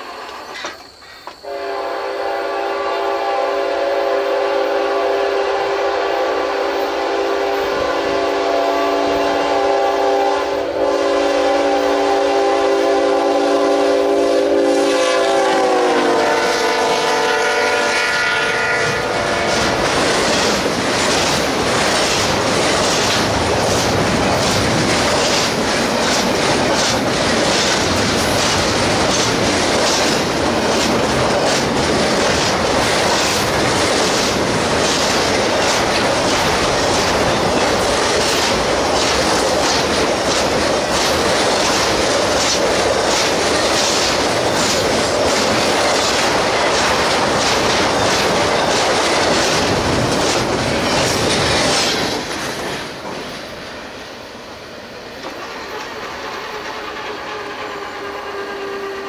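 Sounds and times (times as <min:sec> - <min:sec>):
locomotive air horn: 0:01.4 - 0:19.8, 0:56.2 - 0:59.0
train wheels clacking on rails: 0:14.8 - 0:53.9, 0:55.2 - 0:59.0.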